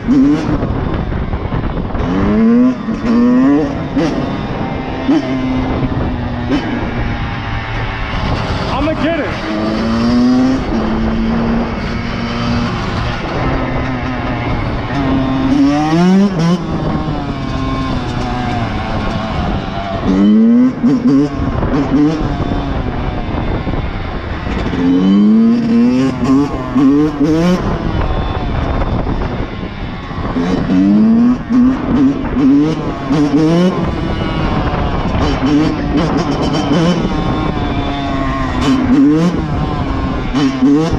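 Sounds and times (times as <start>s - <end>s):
motorcycle engine accelerating: 0.0s - 40.9s
steady rushing noise: 0.0s - 40.9s.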